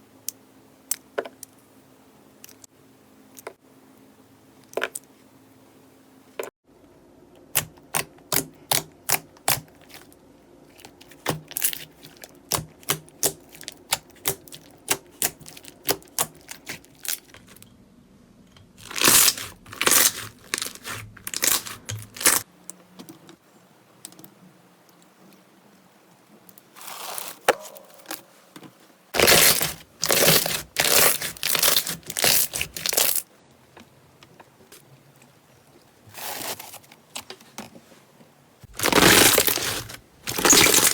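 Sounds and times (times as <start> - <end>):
slime crackling squishes: 7.6 - 17.6, 18.8 - 22.4, 29.2 - 33.2, 38.7 - 40.9.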